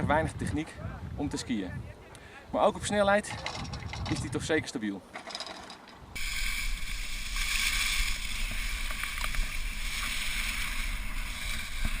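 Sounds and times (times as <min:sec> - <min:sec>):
wind rumbling on microphone: 0:00.0 - 0:04.7, 0:06.0 - 0:12.0
skis rushing on snow: 0:06.2 - 0:12.0.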